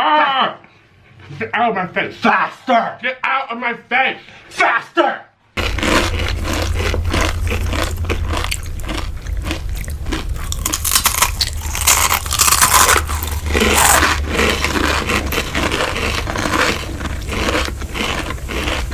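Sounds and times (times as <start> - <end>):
chewing and crunching: 5.6 - 18.9
steady low hum: 5.6 - 18.9.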